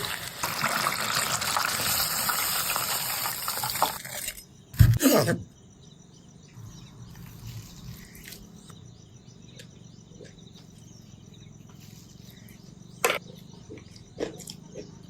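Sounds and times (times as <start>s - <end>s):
insects: 0.0s - 15.0s.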